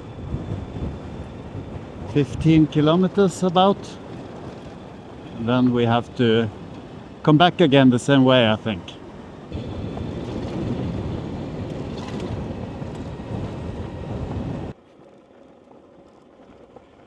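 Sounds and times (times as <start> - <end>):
faint motor whine: 0.0 - 17.0
wind noise: 0.0 - 17.0.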